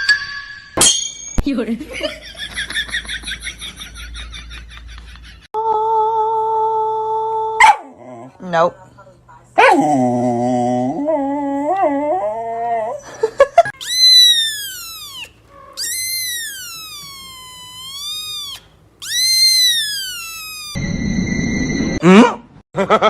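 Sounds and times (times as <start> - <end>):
dog whining cries: 11.4 - 20.8
dog yipping: 13.8 - 20.8.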